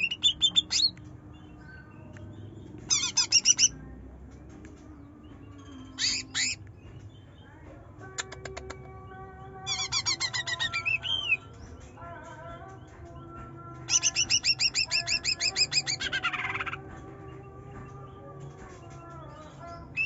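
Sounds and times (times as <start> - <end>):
bird chattering: 0.0 - 1.0, 2.9 - 3.8, 5.9 - 6.6, 9.7 - 11.6, 13.9 - 16.9.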